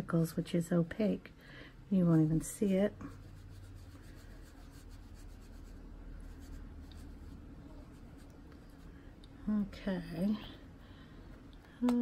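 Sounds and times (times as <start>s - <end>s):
colouring tool rubbing on paper: 2.2s - 8.9s.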